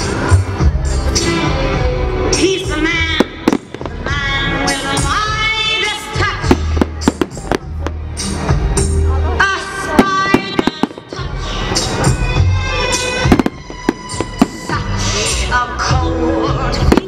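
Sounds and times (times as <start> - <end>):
loud music with singing: 0.0 - 17.0
fireworks banging and crackling: 3.1 - 5.5, 6.1 - 8.8, 9.8 - 15.5, 16.8 - 17.0.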